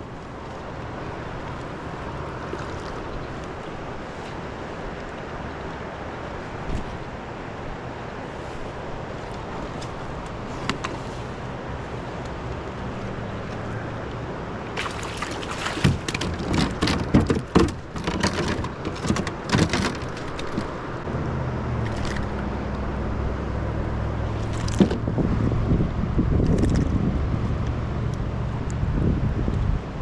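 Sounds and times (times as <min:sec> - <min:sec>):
river water rushing: 0:00.0 - 0:17.2
water splashing and slapping: 0:14.6 - 0:21.0, 0:24.3 - 0:25.2
wind on microphone: 0:24.0 - 0:30.0.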